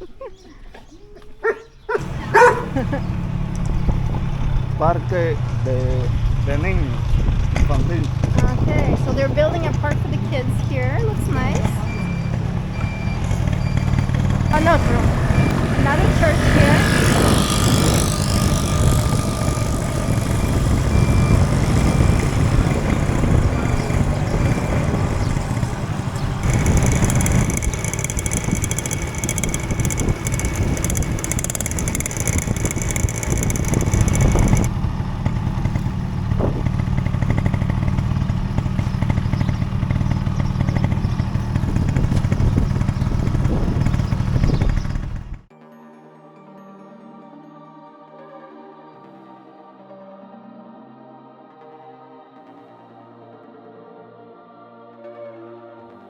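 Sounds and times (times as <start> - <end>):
motorcycle engine running: 1.4 - 45.5
wind rushing over microphone: 2.0 - 12.4, 13.1 - 45.4
high steady buzz: 13.2 - 34.7.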